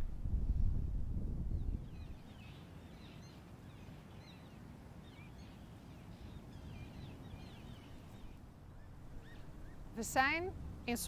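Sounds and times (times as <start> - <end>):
faint low rumble: 0.0 - 2.3
birds chirping: 1.6 - 11.0.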